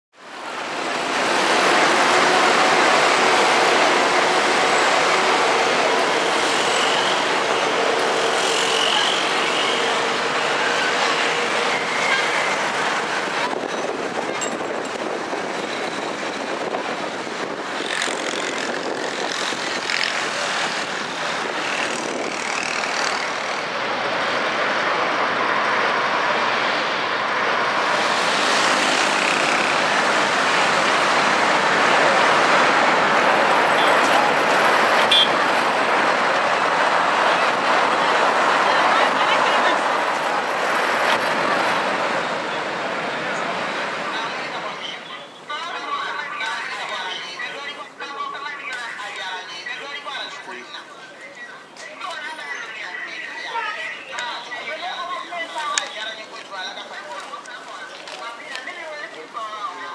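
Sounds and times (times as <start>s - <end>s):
strong wind rushing hiss: 10.0s - 39.0s.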